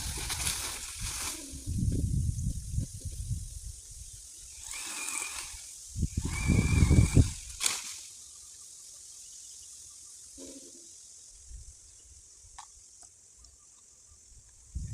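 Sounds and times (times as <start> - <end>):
strong wind buffeting microphone: 0.0 - 4.2, 5.9 - 7.6, 14.7 - 14.9.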